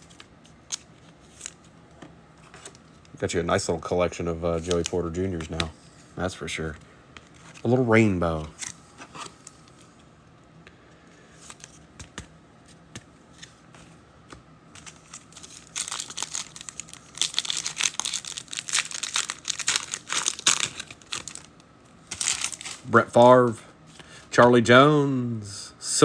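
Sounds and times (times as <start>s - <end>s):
foil wrapper crinkling: 4.6s - 5.2s, 14.8s - 23.3s.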